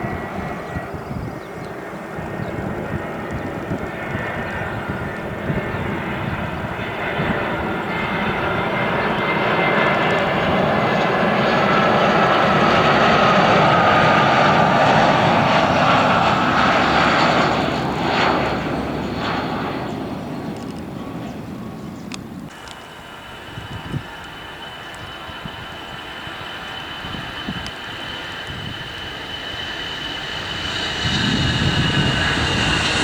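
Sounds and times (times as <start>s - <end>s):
jet engines roaring past: 0.0s - 33.0s.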